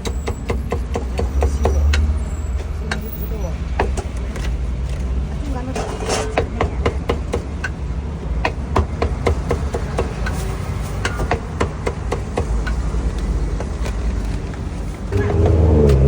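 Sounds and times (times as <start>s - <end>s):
cleaver chopping on wooden block: 0.0s - 2.2s, 3.7s - 4.5s, 6.3s - 10.3s.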